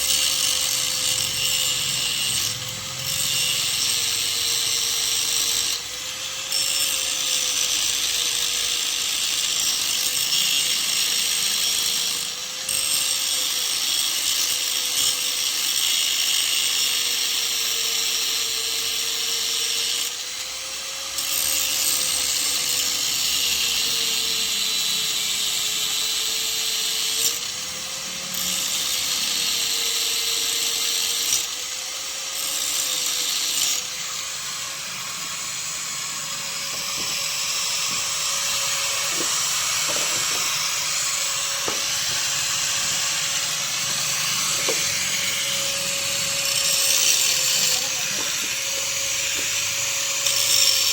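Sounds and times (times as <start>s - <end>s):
angle grinder cutting: 0.0s - 50.9s.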